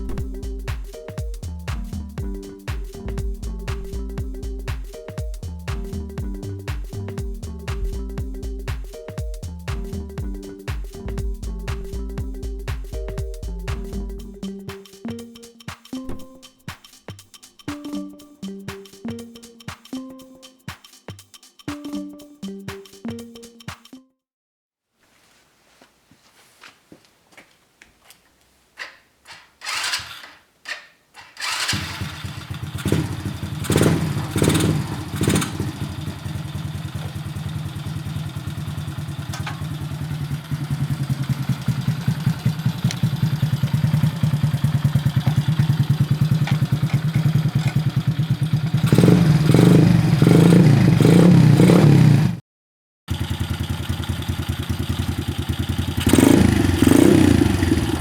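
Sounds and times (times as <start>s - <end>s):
motorcycle engine starting and revving: 0.0s - 0.9s, 29.3s - 52.4s, 53.1s - 58.0s
engine knocks: 31.4s - 52.3s.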